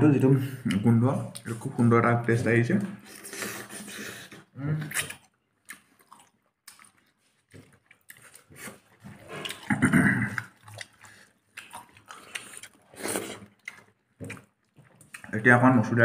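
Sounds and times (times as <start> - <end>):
man chewing and lip smacking: 3.1 - 15.4.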